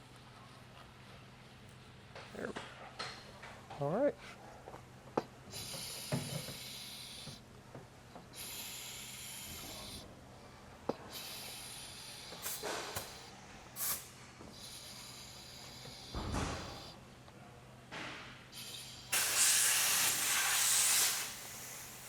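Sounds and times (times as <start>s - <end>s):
fluid pump hissing: 5.5s - 7.4s, 8.3s - 10.0s, 11.1s - 17.0s, 18.5s - 22.0s.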